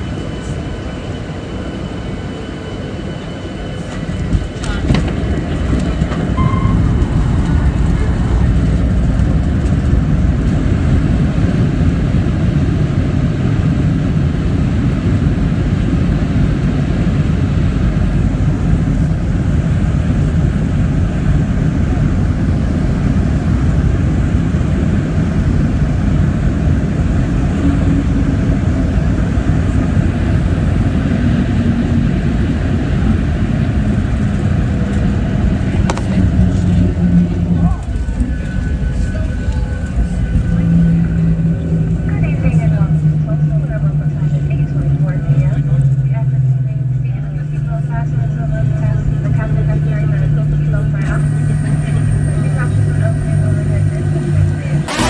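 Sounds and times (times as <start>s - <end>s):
airplane engine rumble in cabin: 0.0s - 55.0s.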